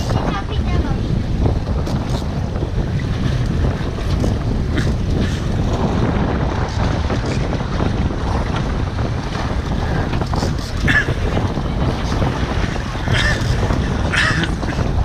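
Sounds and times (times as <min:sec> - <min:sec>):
boat engine: 0:00.0 - 0:15.0
water rumble: 0:00.0 - 0:15.0
water splashes: 0:00.0 - 0:15.0
wind buffeting microphone: 0:00.0 - 0:15.0.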